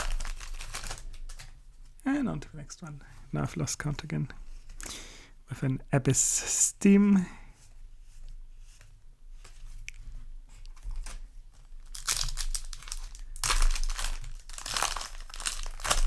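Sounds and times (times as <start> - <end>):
foil wrapper crinkling and tearing: 0.0 - 1.5, 11.0 - 16.0.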